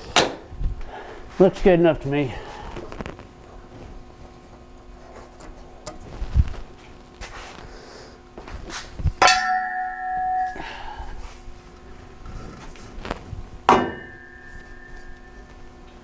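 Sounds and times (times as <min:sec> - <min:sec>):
metal pipe struck ringing: 0:09.2 - 0:11.3, 0:13.6 - 0:16.0
metal exhaust pipe clanging: 0:09.2 - 0:12.0, 0:13.6 - 0:16.0.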